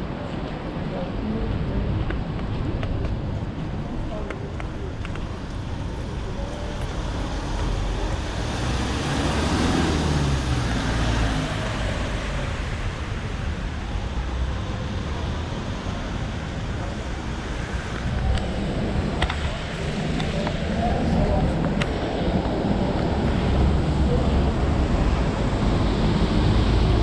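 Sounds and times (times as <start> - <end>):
steady road noise: 0.0 - 27.0
vehicle passing close by: 7.3 - 12.9.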